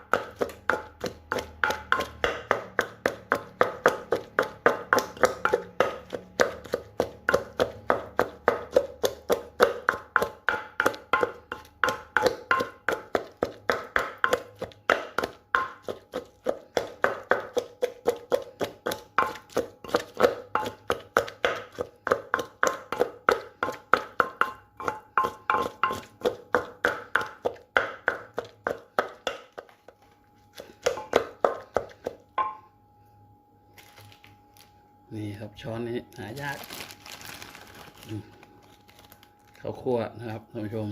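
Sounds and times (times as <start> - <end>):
pestle pounding in a mortar: 0.0 - 32.7.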